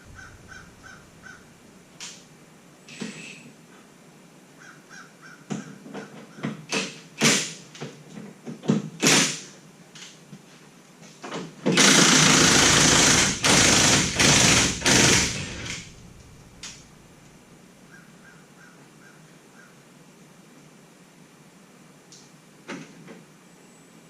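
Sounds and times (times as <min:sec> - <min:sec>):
pneumatic impact wrench rattling: 0:06.7 - 0:07.6, 0:08.9 - 0:09.5, 0:11.6 - 0:17.0.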